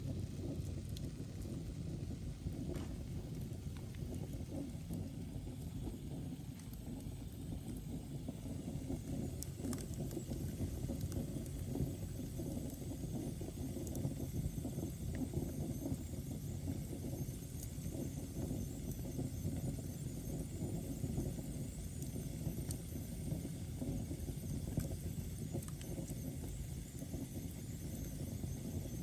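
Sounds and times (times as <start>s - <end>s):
fire rumbling: 0.0s - 18.8s.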